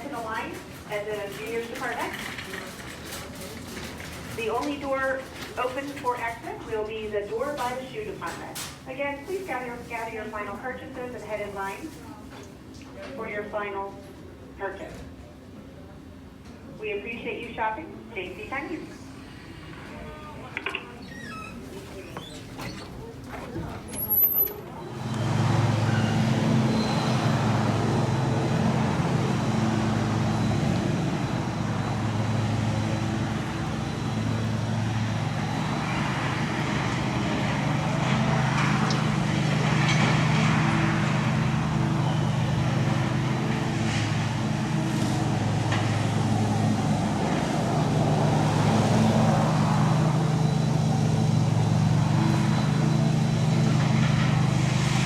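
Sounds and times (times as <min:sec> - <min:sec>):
excavator diesel engine running: 0:22.1 - 0:55.0.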